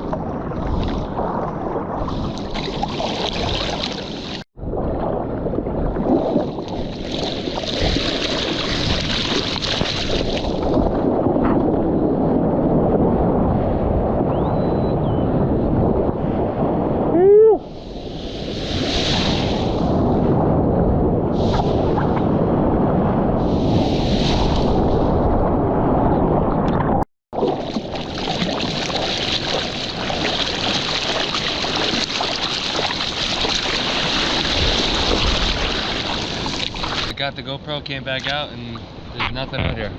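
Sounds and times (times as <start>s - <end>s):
ocean water splashing: 0.0s - 11.4s, 17.7s - 20.2s, 26.5s - 37.2s
wind on microphone: 0.0s - 37.2s.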